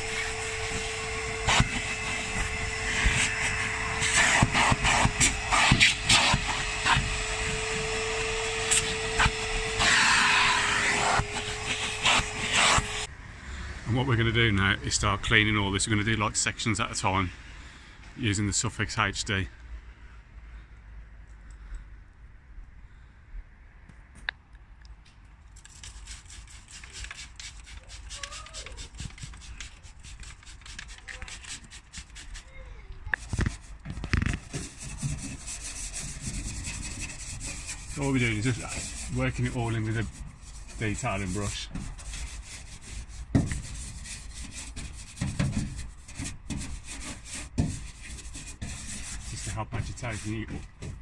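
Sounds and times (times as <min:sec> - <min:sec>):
brush scrubbing bristle strokes: 0:00.0 - 0:13.1, 0:25.6 - 0:33.8, 0:34.4 - 0:51.0
vacuum cleaner motor whine: 0:00.0 - 0:13.1.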